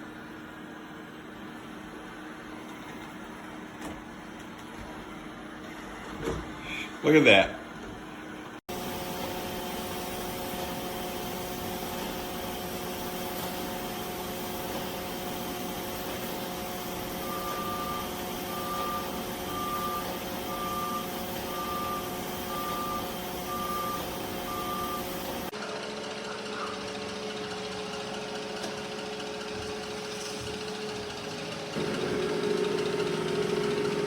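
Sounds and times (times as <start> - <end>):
robot vacuum motor humming: 8.7 - 25.5
short beeps: 17.2 - 25.2.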